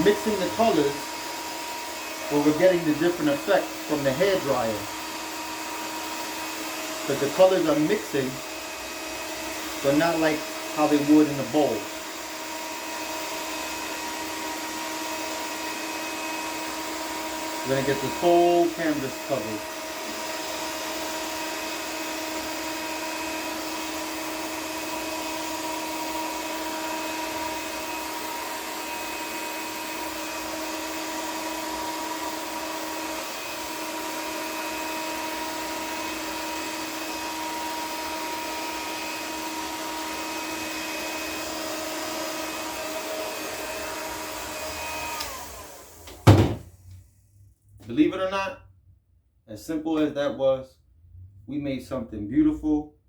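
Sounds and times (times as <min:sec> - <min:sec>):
hair dryer running: 0:00.0 - 0:47.0.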